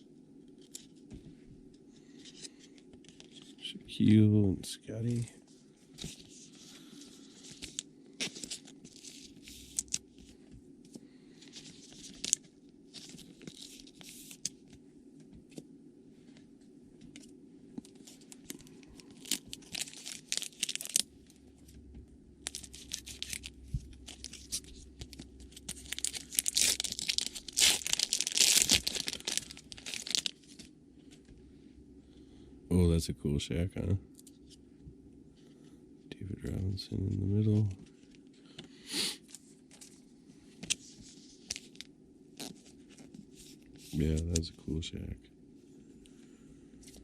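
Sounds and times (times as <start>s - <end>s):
card wrappers tearing and crinkling: 7.3s - 10.0s, 11.5s - 14.6s, 17.9s - 21.1s, 22.4s - 30.7s, 41.4s - 42.7s.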